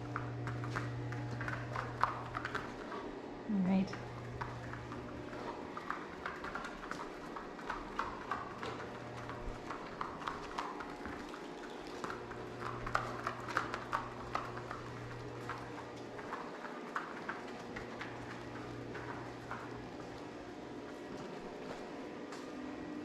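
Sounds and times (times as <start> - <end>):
low steady hum: 0.0 - 23.0
dog claws clicking on hard floor: 0.1 - 3.0, 4.3 - 20.2.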